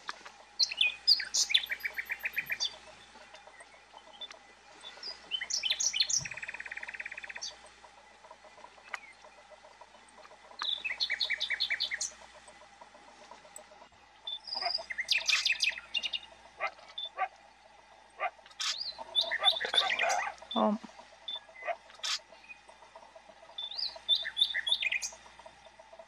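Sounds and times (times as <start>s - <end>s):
bird whistling and trilling: 14.3s - 17.3s, 18.2s - 20.3s.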